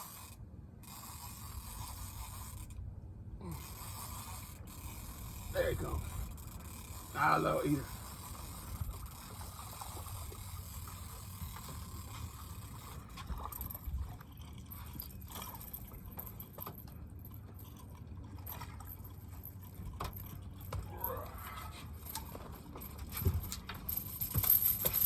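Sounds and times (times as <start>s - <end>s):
water lapping against boat: 7.8s - 16.5s.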